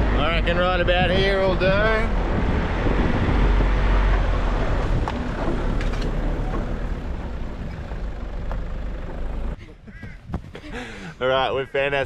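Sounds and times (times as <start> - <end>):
wind noise: 0.0 - 8.1, 9.8 - 10.9
engine and tyre rumble: 0.0 - 9.7.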